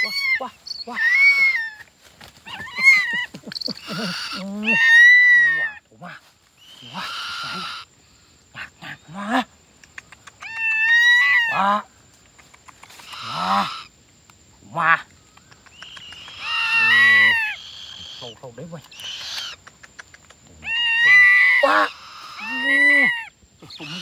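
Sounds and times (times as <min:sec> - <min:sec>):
birds squawking: 0:00.0 - 0:01.8, 0:02.4 - 0:05.8, 0:06.6 - 0:07.9, 0:13.0 - 0:13.9, 0:15.7 - 0:19.6, 0:20.6 - 0:24.0
harsh bird screeches: 0:00.0 - 0:01.8, 0:02.4 - 0:05.8, 0:06.6 - 0:07.9, 0:13.0 - 0:13.9, 0:15.8 - 0:19.6, 0:20.6 - 0:24.0.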